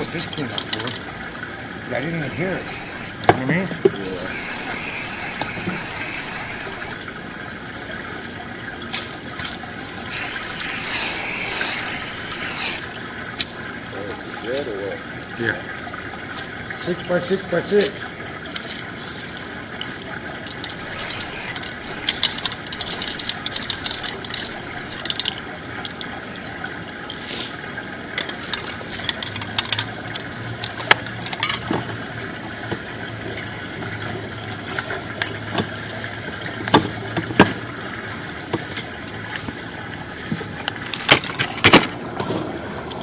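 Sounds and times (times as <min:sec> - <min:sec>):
hiss: 0:02.2 - 0:03.3, 0:04.0 - 0:07.0, 0:10.1 - 0:12.8, 0:20.7 - 0:25.1.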